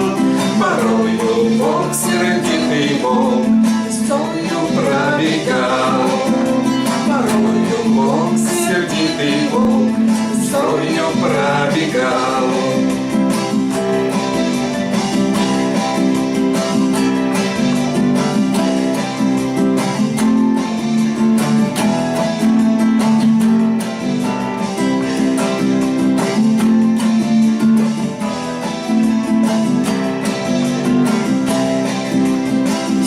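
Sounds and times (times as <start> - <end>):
acoustic guitar strumming: 0.0 - 33.0.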